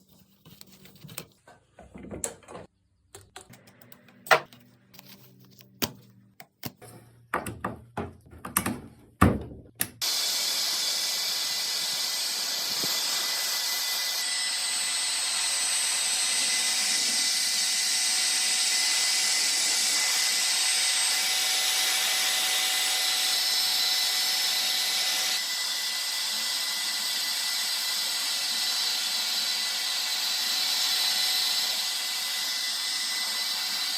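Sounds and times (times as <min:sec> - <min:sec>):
electric power tool whining: 0:10.0 - 0:33.9.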